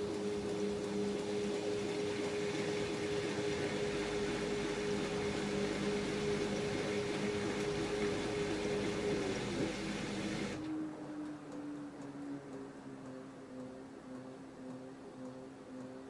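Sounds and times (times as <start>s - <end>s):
washing machine running: 0.0s - 11.9s.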